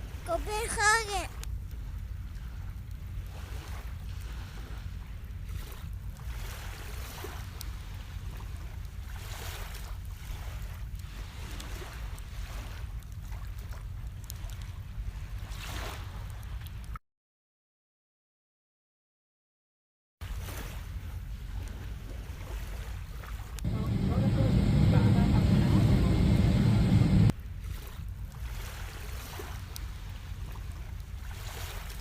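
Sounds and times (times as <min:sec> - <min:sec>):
sea waves washing on shore: 0:00.0 - 0:01.4, 0:03.3 - 0:13.7, 0:20.3 - 0:32.0
wind rumbling on microphone: 0:23.6 - 0:32.0.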